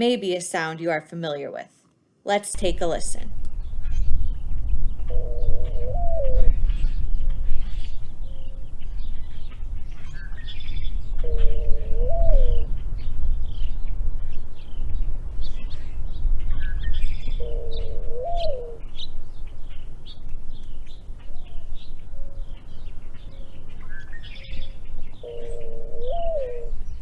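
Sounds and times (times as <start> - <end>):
mourning dove cooing: 2.6 - 27.0
small birds chirping: 2.6 - 27.0.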